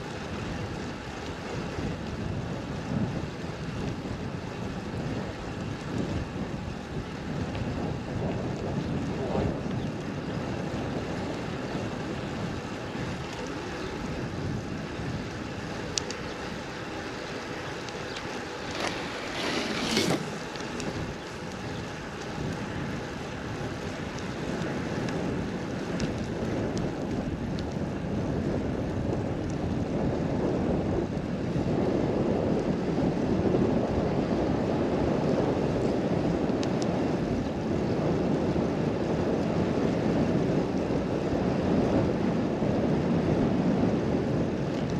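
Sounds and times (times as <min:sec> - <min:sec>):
wind buffeting microphone: 0:00.0 - 0:44.9
surf rushing: 0:18.4 - 0:21.1.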